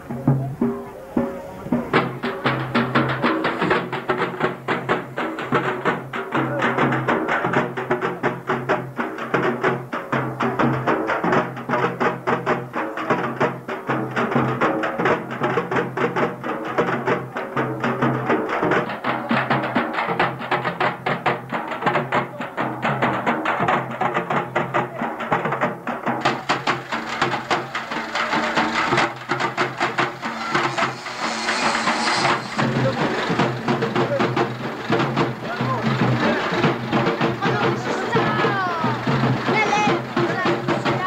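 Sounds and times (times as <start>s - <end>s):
fast dense drumming: 0.0s - 41.0s
steady low tone: 29.5s - 33.6s.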